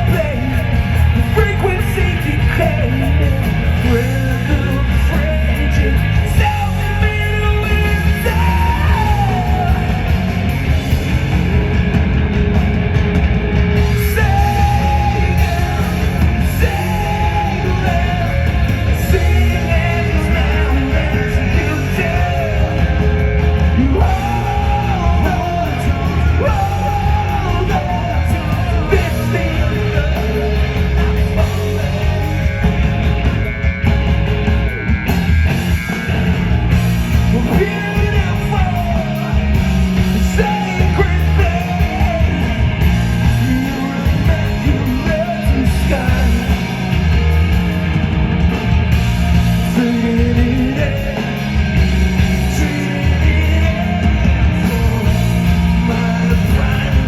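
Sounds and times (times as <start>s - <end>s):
live rock band playing: 0.0s - 57.0s
person singing: 13.9s - 32.8s, 37.2s - 47.0s, 49.6s - 57.0s.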